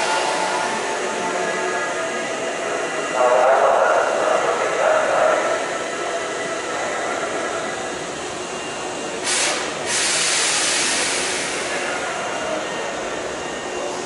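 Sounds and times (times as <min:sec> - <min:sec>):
electric train running: 0:00.0 - 0:14.0
air hissing: 0:09.2 - 0:11.9.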